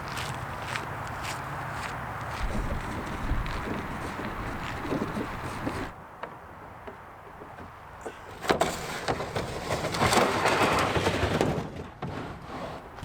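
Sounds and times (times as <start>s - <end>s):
scraping and rustling of gear: 8.6s - 13.0s.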